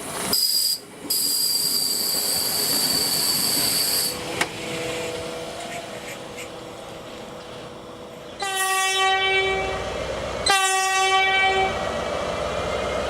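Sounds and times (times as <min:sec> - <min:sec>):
train rumble: 0:00.0 - 0:13.0
train horn blasts: 0:08.4 - 0:11.8.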